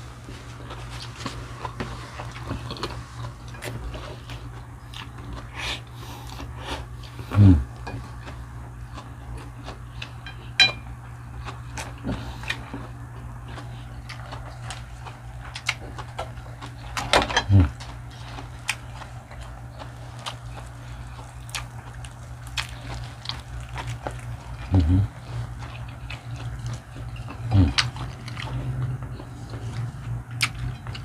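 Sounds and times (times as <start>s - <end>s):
chewing and biting fried chicken: 0.0s - 31.0s
cutlery clinking on a plate: 10.2s - 10.9s.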